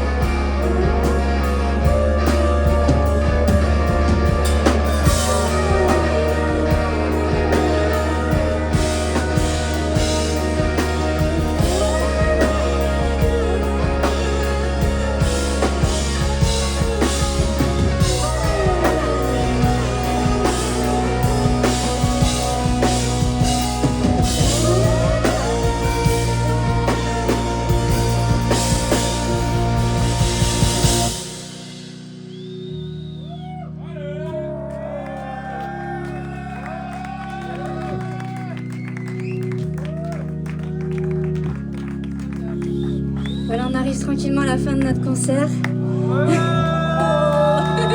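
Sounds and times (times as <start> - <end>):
drum kit beat: 0.0 - 32.4
rock band playing: 0.0 - 33.8, 34.4 - 47.9.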